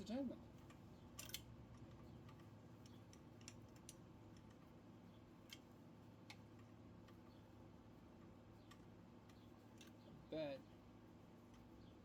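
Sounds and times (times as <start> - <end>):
small metal parts clicking: 0.6 - 4.7.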